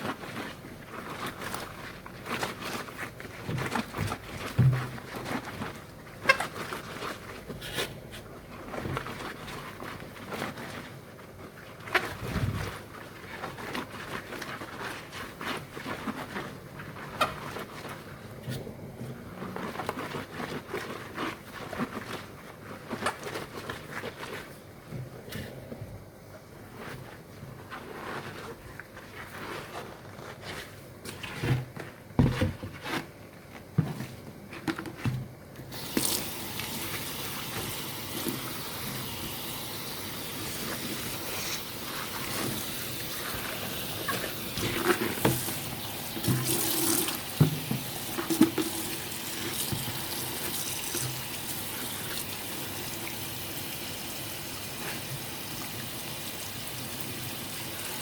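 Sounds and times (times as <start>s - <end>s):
tap water running into sink: 35.7s - 54.4s
knocks of things being handled: 46.2s - 48.8s.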